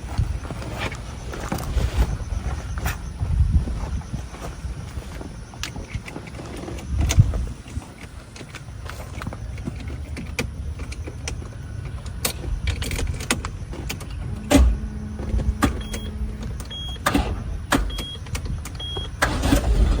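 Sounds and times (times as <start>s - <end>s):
short high beeps: 14.7s - 17.0s.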